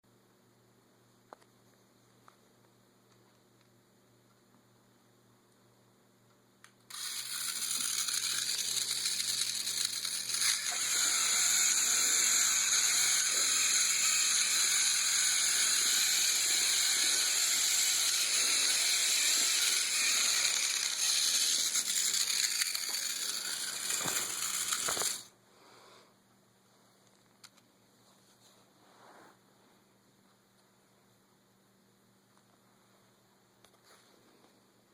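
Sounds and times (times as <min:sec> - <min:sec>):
toy motor and gears whirring: 0:06.9 - 0:25.3.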